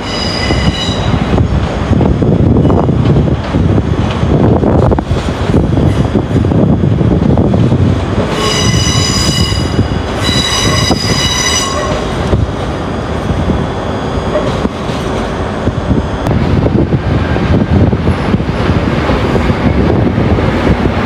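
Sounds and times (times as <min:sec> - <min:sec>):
train wheels squealing: 0:00.0 - 0:01.2, 0:08.3 - 0:12.1
train rumbling: 0:00.0 - 0:21.0.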